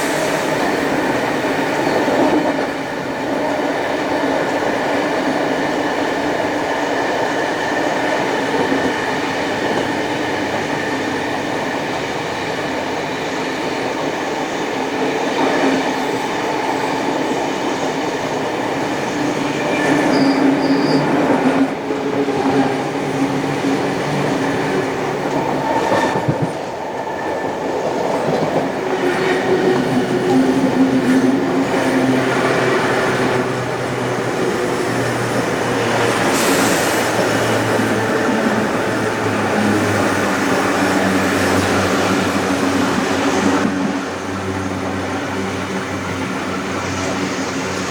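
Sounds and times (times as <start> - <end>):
train wheels rumbling on rails: 0.0 - 47.9
wheel squeal: 19.5 - 21.3.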